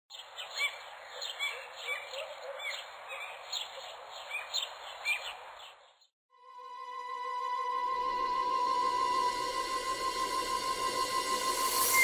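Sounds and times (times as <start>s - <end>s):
birds chirping: 0.1s - 6.1s.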